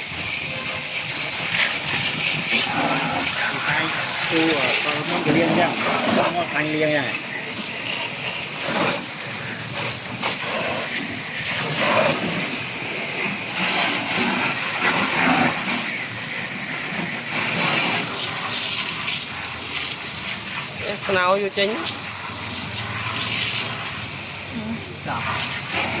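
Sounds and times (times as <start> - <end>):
running water hissing: 0.0 - 26.0.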